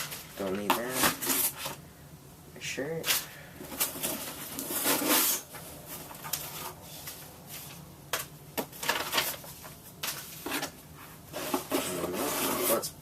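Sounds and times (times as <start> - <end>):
packaging rustling: 3.0 - 10.8.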